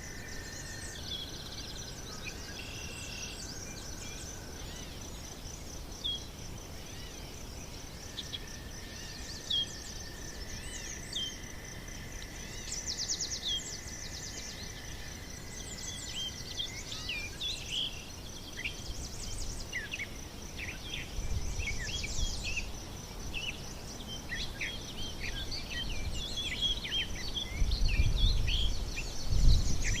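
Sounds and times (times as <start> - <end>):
high insect trill: 0.0 - 30.0
birds chirping and calling: 23.4 - 30.0.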